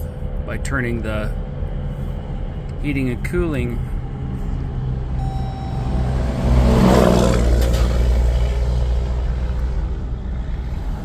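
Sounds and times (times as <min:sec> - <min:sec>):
car engine starting and running: 0:00.0 - 0:11.0
brief steady tone: 0:05.2 - 0:06.1.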